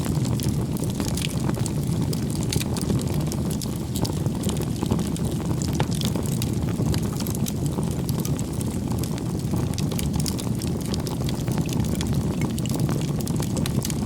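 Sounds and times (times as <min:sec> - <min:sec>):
fire flames rumbling: 0:00.0 - 0:14.0
firewood crackling and popping: 0:00.0 - 0:14.0.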